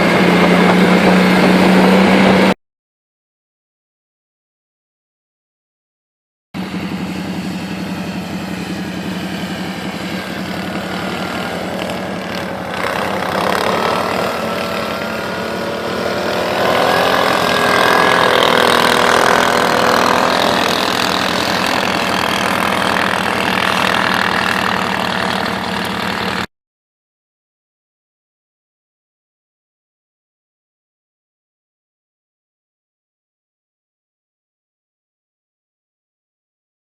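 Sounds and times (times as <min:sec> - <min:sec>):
quad engine revving: 0:00.0 - 0:02.6, 0:06.6 - 0:26.5
rising whine: 0:00.0 - 0:02.6, 0:06.6 - 0:26.5.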